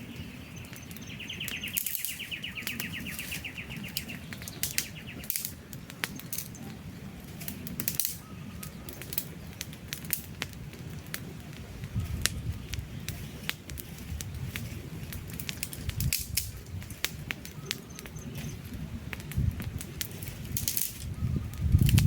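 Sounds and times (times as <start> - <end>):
bird chirping trill: 0.0 - 5.5, 17.5 - 18.6
campfire crackling and popping: 0.0 - 22.0.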